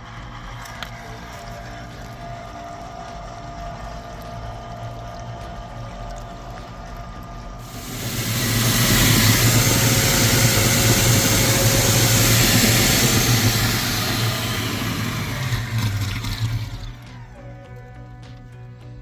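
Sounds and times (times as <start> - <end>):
pump hum: 0.0 - 17.6
water rushing from burst pipe: 7.6 - 16.9.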